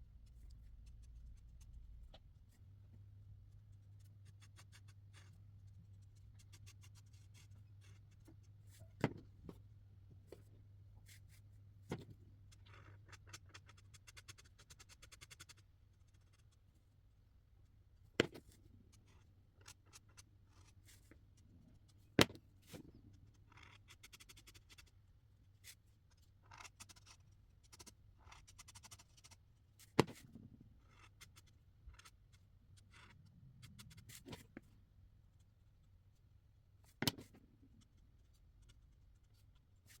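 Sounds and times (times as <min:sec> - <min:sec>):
marker scratching on paper: 0:03.8 - 0:08.3, 0:12.6 - 0:16.5, 0:23.5 - 0:24.9, 0:26.1 - 0:34.5.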